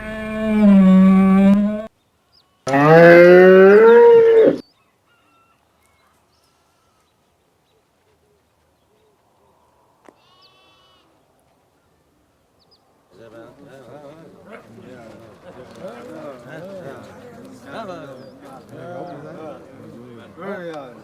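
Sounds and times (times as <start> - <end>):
cow mooing: 0.0 - 1.9, 2.7 - 4.6
faint short animal call: 10.2 - 11.2.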